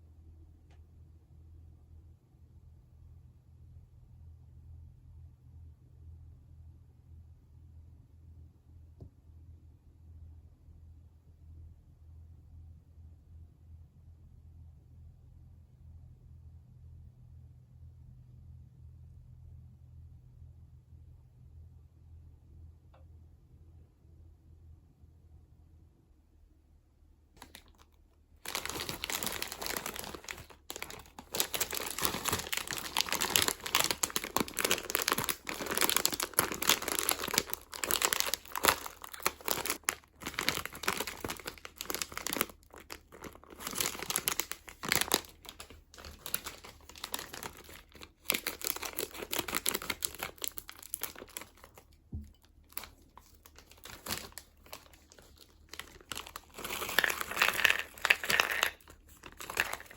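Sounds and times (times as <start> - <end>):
plastic packaging crinkling: 27.4 - 59.9.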